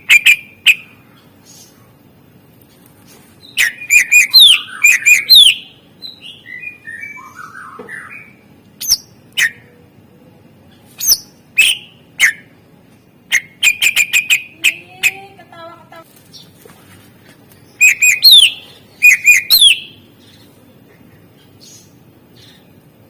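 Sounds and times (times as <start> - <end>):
bird twittering: 0.0 - 1.8, 3.4 - 9.8, 10.7 - 12.6, 13.3 - 15.3, 17.6 - 20.5
bird singing whistled notes: 3.4 - 9.7, 11.0 - 12.5, 13.3 - 14.6, 17.7 - 20.0.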